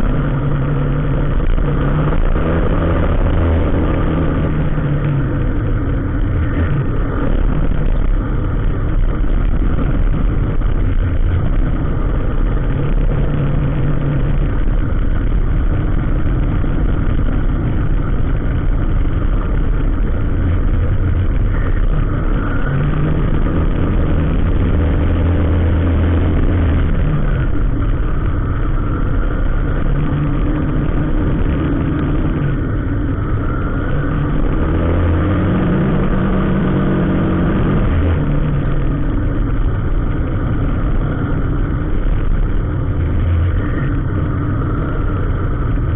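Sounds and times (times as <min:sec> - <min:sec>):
traffic engines droning: 0:00.0 - 0:45.9.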